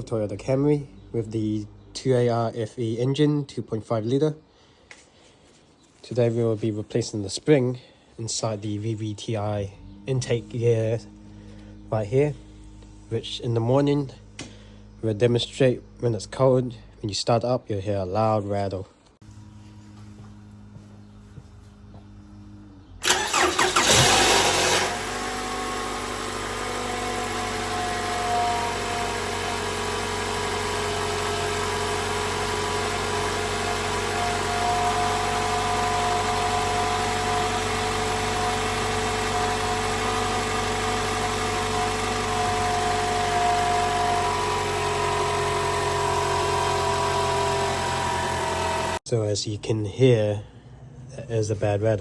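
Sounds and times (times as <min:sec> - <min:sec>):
car engine starting: 0:08.8 - 0:16.9, 0:22.3 - 0:49.0
car engine idling: 0:09.6 - 0:16.9, 0:19.3 - 0:49.0
engine rattle: 0:23.0 - 0:49.0.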